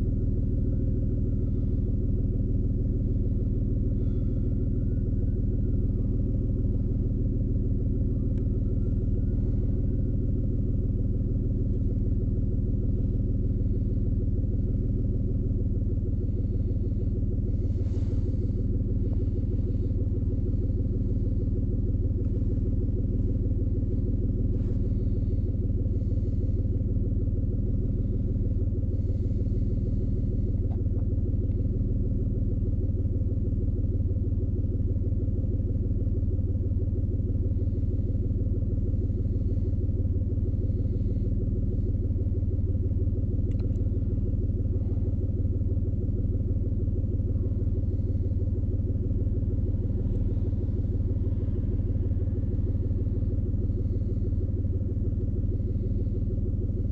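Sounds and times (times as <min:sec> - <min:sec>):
car engine idling: 0:00.0 - 0:56.9.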